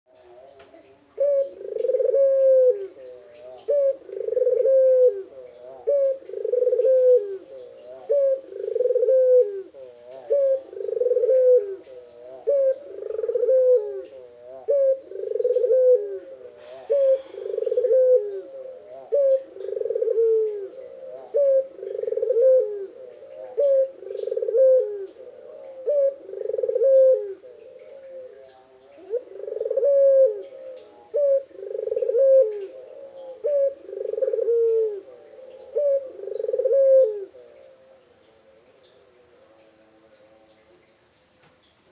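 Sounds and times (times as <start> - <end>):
dove cooing: 0.1 - 38.0.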